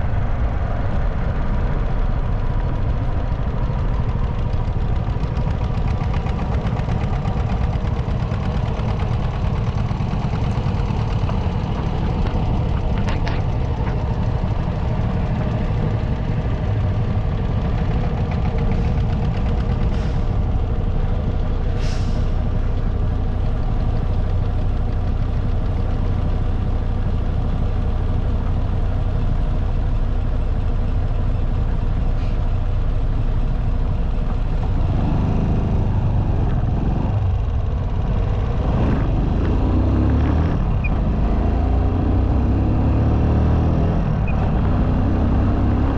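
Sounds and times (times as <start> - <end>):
motorcycle engine running: 2.1 - 21.4
short hisses: 21.8 - 22.4.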